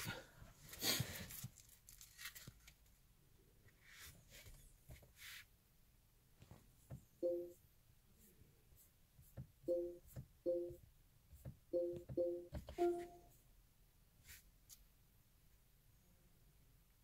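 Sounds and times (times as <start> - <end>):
touchscreen electronic beeps: 7.2 - 7.6, 9.7 - 10.8, 11.8 - 13.3.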